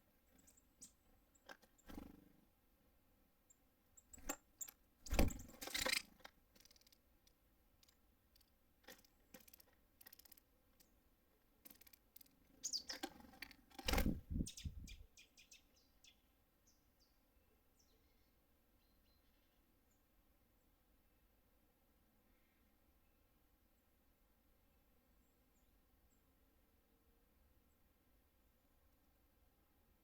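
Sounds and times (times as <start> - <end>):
songbirds chirping: 0.0 - 29.5
birds knocking and rustling at feeder: 4.0 - 11.0, 11.6 - 14.3.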